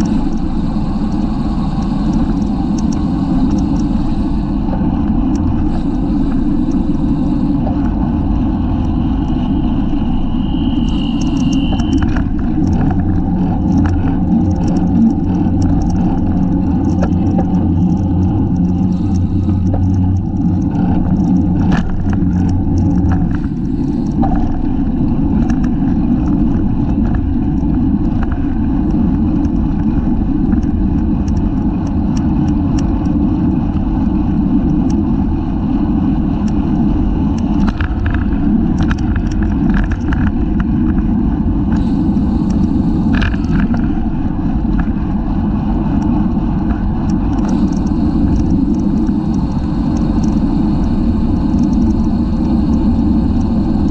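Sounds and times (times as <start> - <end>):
bike clicks and rattles: 0.0 - 53.9
wind rumbling on microphone: 0.0 - 53.9.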